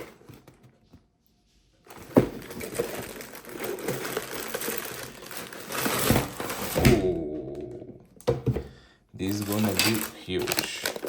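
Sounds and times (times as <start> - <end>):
cardboard packaging rustling: 1.8 - 6.9, 9.2 - 11.0.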